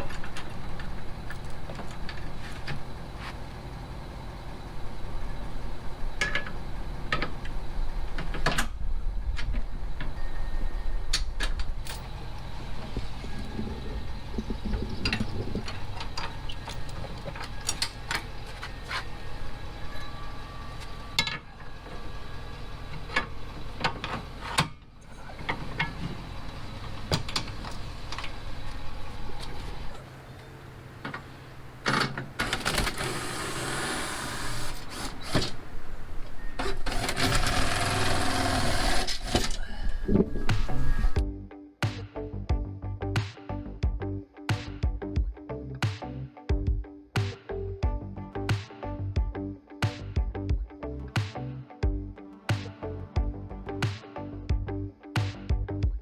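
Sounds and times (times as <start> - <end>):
truck engine humming: 0.0 - 41.3.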